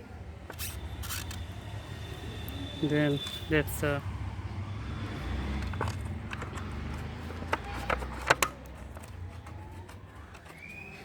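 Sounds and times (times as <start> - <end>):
clicks and knocks of cover handling: 5.5 - 11.0.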